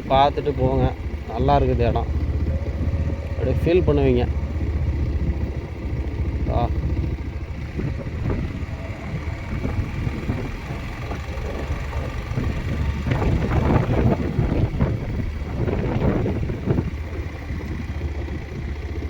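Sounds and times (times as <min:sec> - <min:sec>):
motorcycle running: 0:00.0 - 0:19.0
wind rumbling on microphone: 0:00.0 - 0:19.0.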